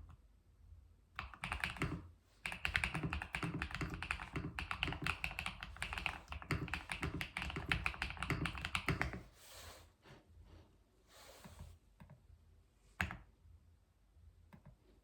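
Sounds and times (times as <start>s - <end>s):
fast typing on keyboard: 1.2s - 9.2s.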